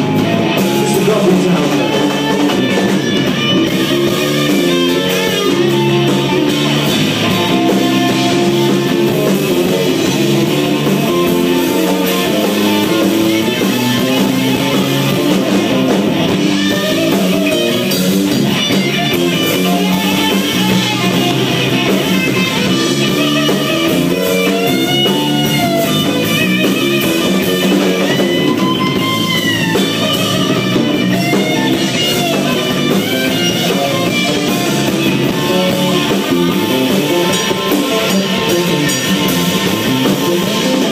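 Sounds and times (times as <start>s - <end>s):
electric guitar bending notes: 0.0s - 40.9s
rock band playing: 0.0s - 40.9s.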